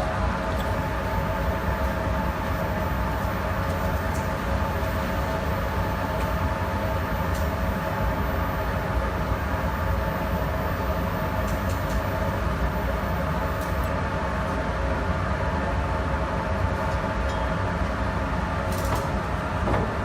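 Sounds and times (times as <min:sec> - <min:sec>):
powder coating machine humming: 0:00.0 - 0:14.4.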